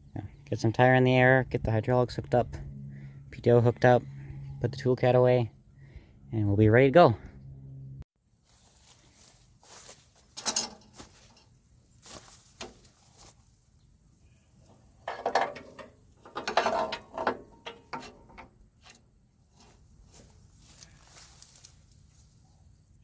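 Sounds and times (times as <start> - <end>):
metal parts clanking and rattling: 10.3 - 11.5, 15.0 - 19.0.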